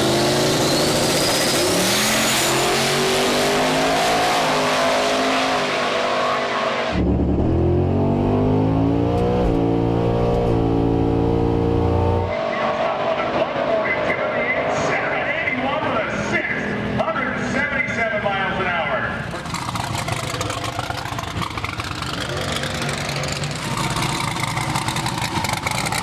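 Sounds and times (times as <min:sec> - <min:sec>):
car engine accelerating: 0:00.0 - 0:17.1, 0:19.2 - 0:26.0.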